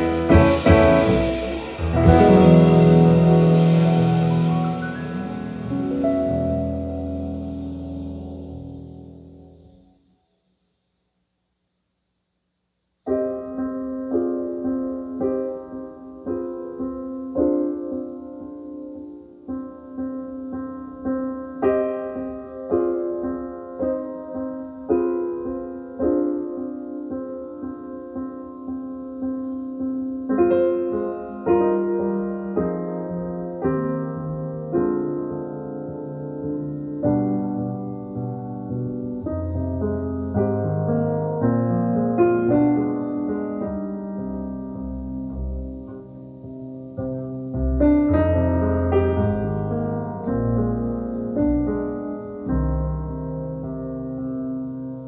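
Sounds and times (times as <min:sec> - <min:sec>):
jazz piano chords over loudspeakers: 0:00.0 - 0:09.4, 0:21.8 - 0:55.0.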